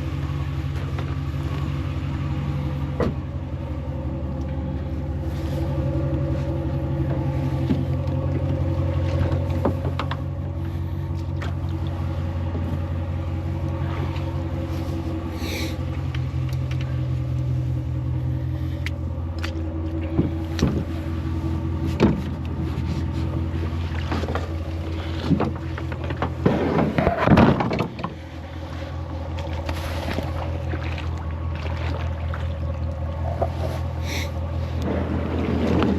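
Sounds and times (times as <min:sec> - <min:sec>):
truck engine humming: 0:00.0 - 0:35.9
knocks and clunks: 0:02.9 - 0:03.3, 0:19.4 - 0:20.9, 0:21.8 - 0:22.6, 0:24.0 - 0:28.2.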